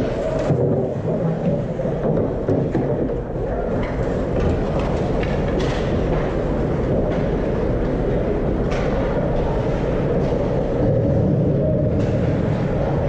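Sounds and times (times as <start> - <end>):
ice arena rumble: 0.0 - 13.0.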